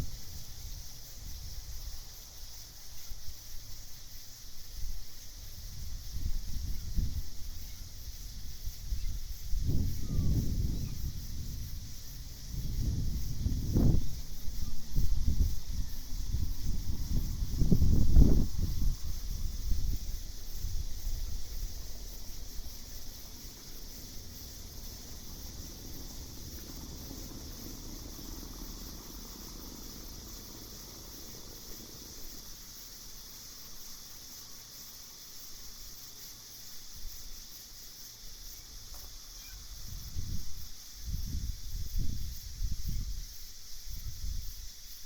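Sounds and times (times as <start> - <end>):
night insects chorus: 0.0 - 45.0
low rumbling gusts: 4.8 - 34.1.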